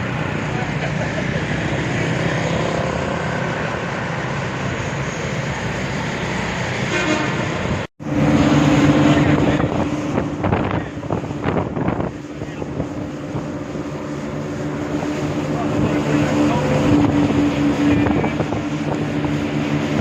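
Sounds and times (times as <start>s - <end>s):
low engine hum: 0.0s - 6.8s, 7.4s - 20.0s
wind and road noise: 0.0s - 20.0s
vehicle engine running: 8.0s - 20.0s.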